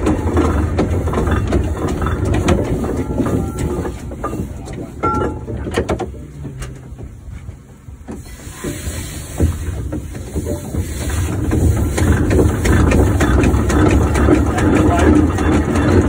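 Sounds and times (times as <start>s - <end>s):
clanks and knocks: 0.0s - 16.0s
steam engine rumbling: 0.0s - 16.0s
steam hissing: 8.1s - 15.6s.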